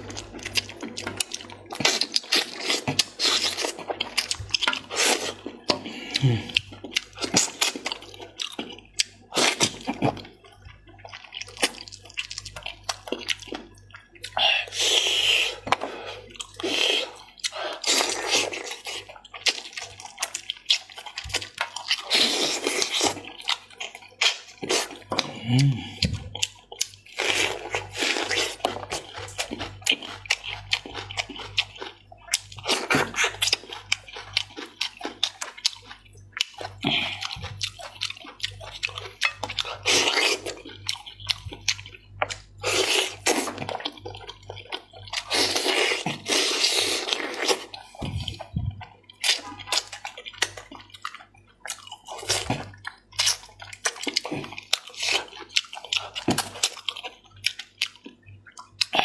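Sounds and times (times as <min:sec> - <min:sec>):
wet chewing and smacking: 0:00.0 - 0:59.0.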